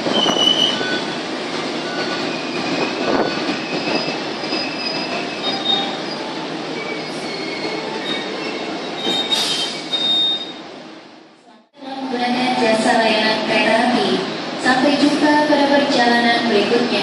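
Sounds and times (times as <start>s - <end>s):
train wheels rumbling on rail: 0.0s - 10.8s
high-pitched wheel squeals: 0.1s - 1.2s, 1.8s - 10.6s.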